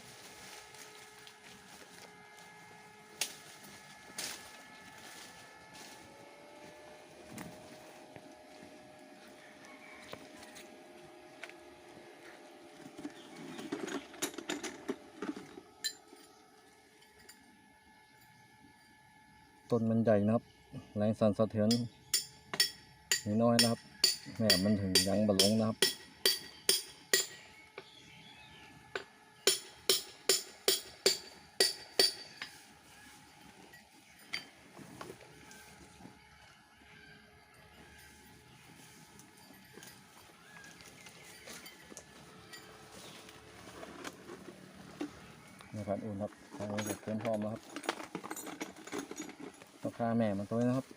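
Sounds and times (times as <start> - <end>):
hammer striking metal peg: 21.7 - 27.4, 29.5 - 32.5.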